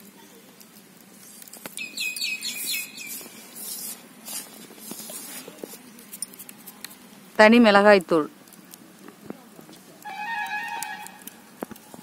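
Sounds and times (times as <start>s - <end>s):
bird chirping: 1.8s - 3.5s
hand stirring flour in a bowl: 2.5s - 7.0s.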